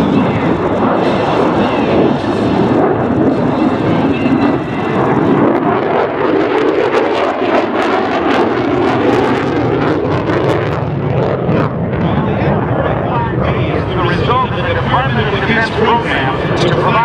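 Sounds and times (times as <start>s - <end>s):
fighter jet engine roaring: 0.0s - 17.0s.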